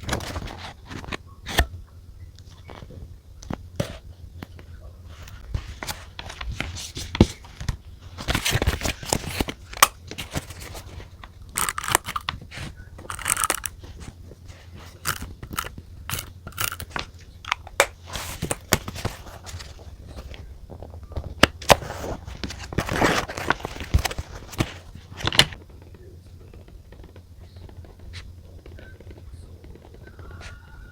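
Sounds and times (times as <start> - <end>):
paper rustling and scraping: 0.0 - 1.6, 5.1 - 17.1, 18.0 - 25.6
faint low hum: 0.0 - 30.9.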